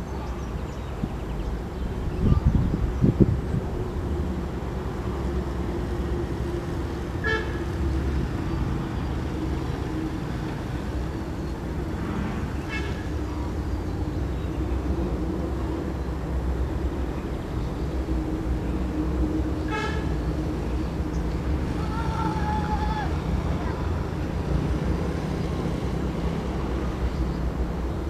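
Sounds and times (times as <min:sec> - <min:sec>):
train rumbling at speed: 0:00.0 - 0:28.0
short high train horn toots: 0:07.2 - 0:07.8, 0:12.6 - 0:13.1, 0:19.7 - 0:20.2.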